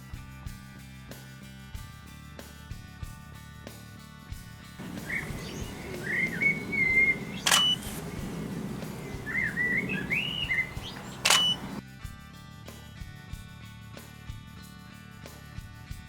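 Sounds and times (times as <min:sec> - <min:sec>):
songbird warbling: 0:04.8 - 0:11.8
camera shutter clicks: 0:07.4 - 0:09.3, 0:10.8 - 0:11.8.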